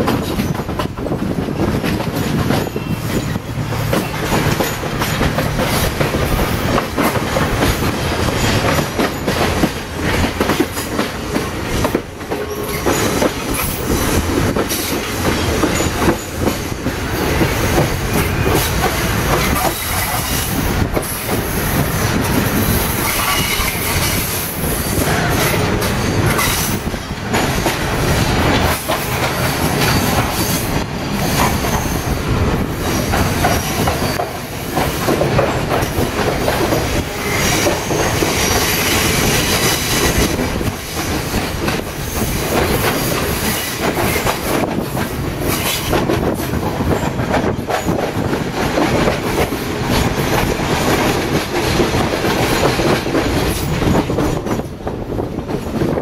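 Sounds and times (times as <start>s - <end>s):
wheels clattering over rail joints: 0.0s - 54.8s
train rumbling: 0.0s - 56.0s.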